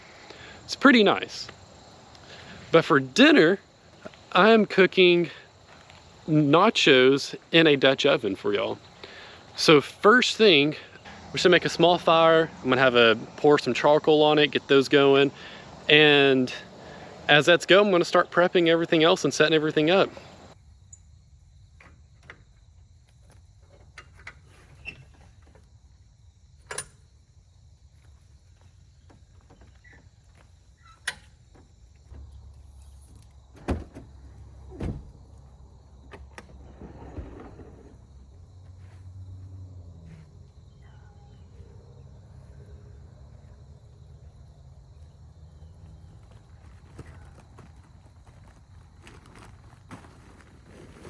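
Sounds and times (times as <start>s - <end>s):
camp gear knocks and clicks: 21.7s - 25.8s, 26.6s - 27.2s.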